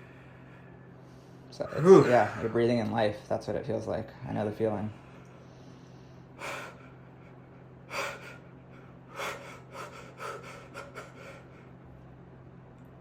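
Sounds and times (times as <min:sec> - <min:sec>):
faint low hum: 0:00.0 - 0:13.0
man gasping breaths: 0:05.0 - 0:11.8.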